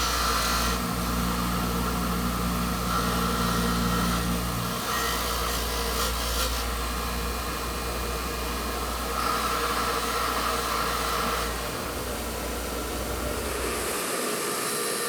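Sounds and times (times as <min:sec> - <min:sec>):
electric shop tool whirring: 0:00.0 - 0:15.0.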